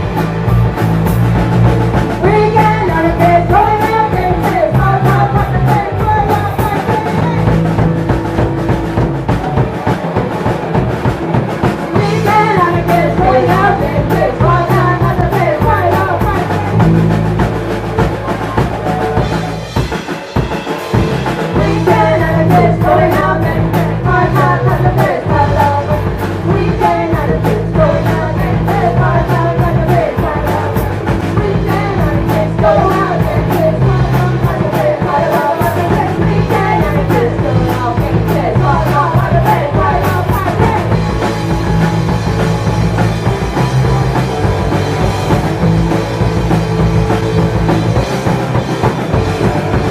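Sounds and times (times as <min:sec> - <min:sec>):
bass guitar: 0:00.0 - 0:49.9
drum kit: 0:00.0 - 0:49.9
electric guitar: 0:00.0 - 0:49.9
person singing: 0:02.2 - 0:07.7, 0:12.0 - 0:17.0, 0:21.4 - 0:41.4.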